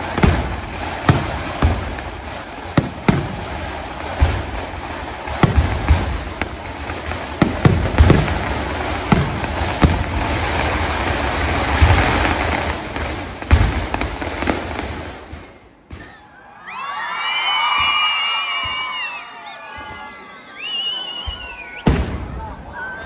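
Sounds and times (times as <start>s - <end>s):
fireworks crackling: 0.0s - 16.2s, 21.2s - 22.7s
fireworks bangs: 0.0s - 16.4s, 17.6s - 19.1s, 21.2s - 23.0s.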